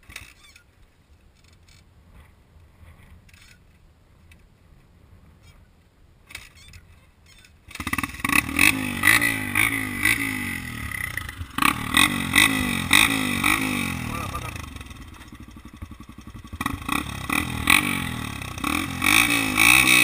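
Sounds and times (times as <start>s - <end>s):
dirt bike engine revving: 7.7s - 20.0s.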